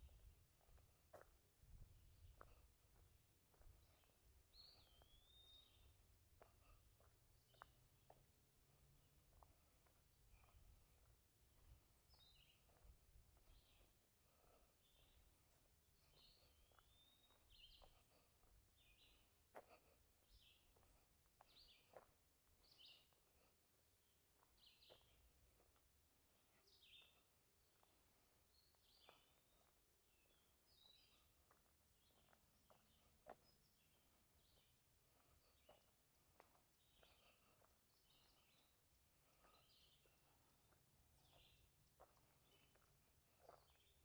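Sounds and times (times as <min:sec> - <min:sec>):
faint bird chirps: 0:03.9 - 0:06.0.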